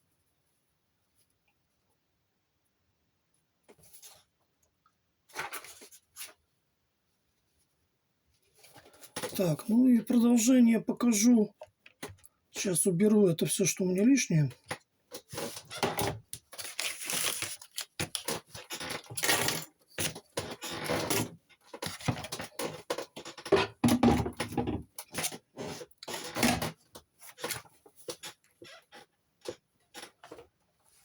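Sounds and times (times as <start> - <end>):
objects rustling and clattering: 3.6 - 4.4, 5.2 - 6.6, 7.4 - 10.4, 14.5 - 31.0.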